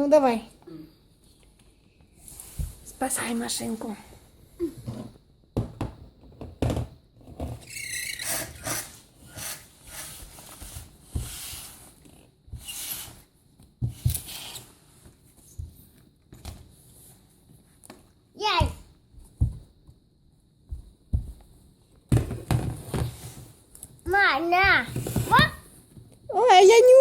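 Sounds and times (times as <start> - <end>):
plastic balls knocking and rattling: 22.0 - 23.2.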